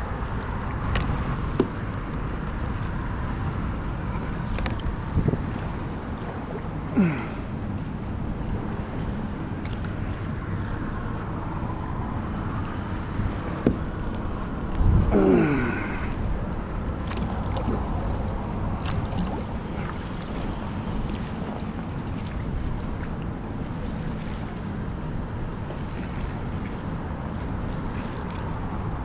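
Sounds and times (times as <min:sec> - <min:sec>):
wind on microphone: 0:00.0 - 0:29.0
water sloshing against kayak hull: 0:12.7 - 0:29.0.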